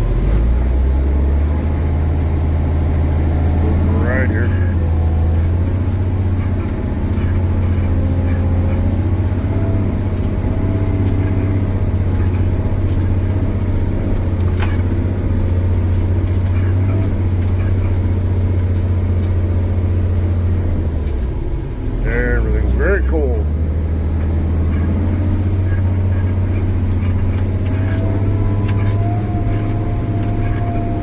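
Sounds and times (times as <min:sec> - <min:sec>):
diesel engine droning: 0:00.0 - 0:31.0.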